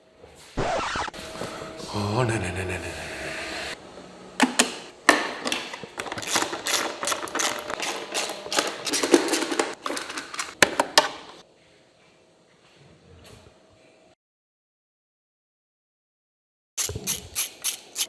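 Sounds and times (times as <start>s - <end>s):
tools clicking on metal parts: 4.5s - 11.4s.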